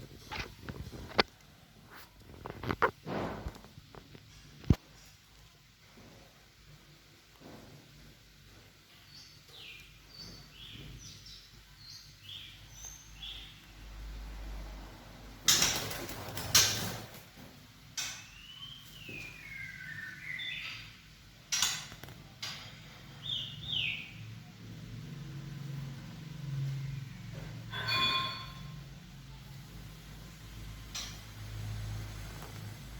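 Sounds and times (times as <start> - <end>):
bird chirping: 9.0 - 14.0, 18.0 - 21.8, 23.1 - 24.3.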